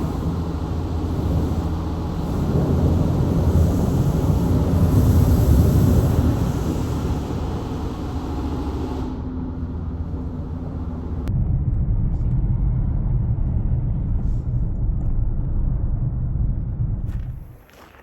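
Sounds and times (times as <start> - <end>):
hiss: 0.0 - 9.2
low rumble: 0.0 - 18.0.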